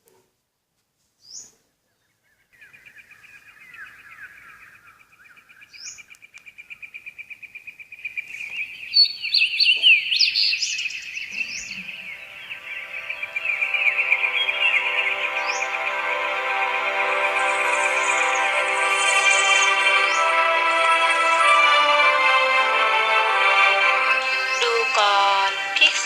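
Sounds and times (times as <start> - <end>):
bird chirps: 1.2 - 21.8
many overlapping bird calls: 1.2 - 26.0
fast pulsing bird trill: 11.7 - 22.1, 23.8 - 26.0.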